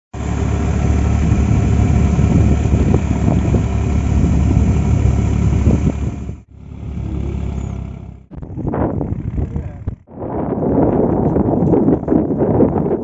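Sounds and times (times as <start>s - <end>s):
tractor diesel engine running: 0.1s - 10.1s.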